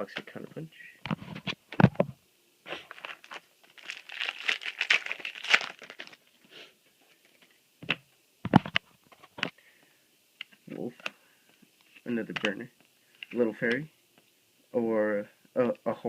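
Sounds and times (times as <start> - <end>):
foil pack tearing and crinkling: 2.7 - 6.3.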